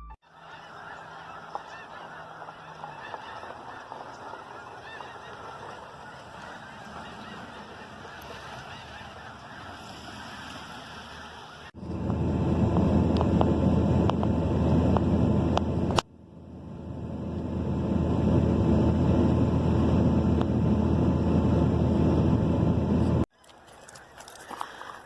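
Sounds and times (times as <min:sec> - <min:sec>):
flock of geese honking: 0:00.2 - 0:11.8.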